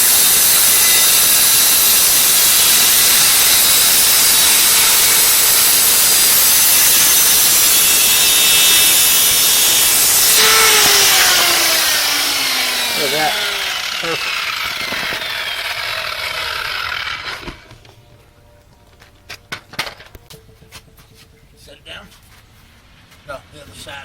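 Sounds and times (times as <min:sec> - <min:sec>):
saw motor winding down: 0:00.0 - 0:17.6
power saw cutting wood: 0:00.0 - 0:17.8.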